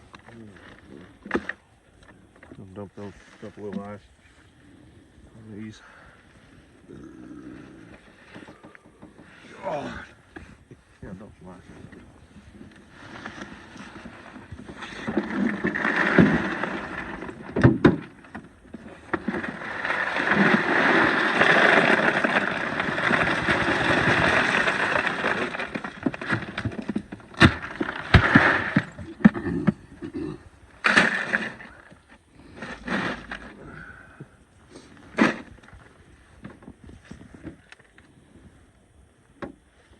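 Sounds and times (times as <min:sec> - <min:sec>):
knocks and clatters: 0:13.2 - 0:29.8
ice pouring over fish: 0:19.4 - 0:26.4.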